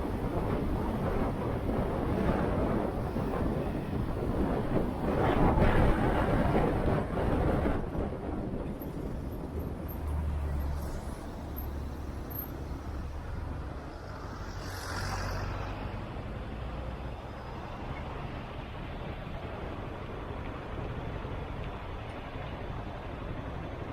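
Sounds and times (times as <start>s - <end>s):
wind noise on microphone: 0.0s - 13.9s.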